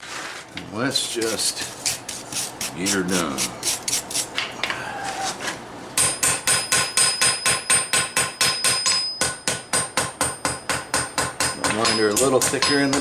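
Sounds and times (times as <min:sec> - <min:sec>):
hammer striking steel on anvil: 0:06.0 - 0:13.0.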